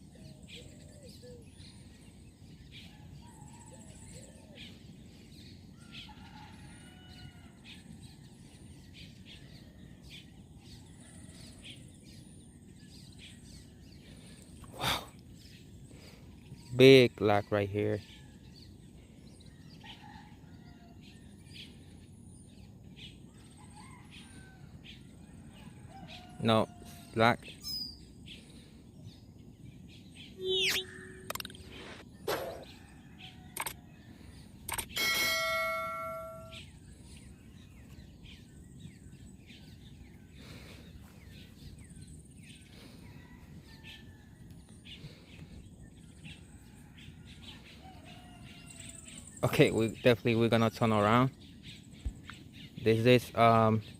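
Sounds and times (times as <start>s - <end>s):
faint birdsong: 0.0s - 53.9s
low steady hum: 26.9s - 43.7s.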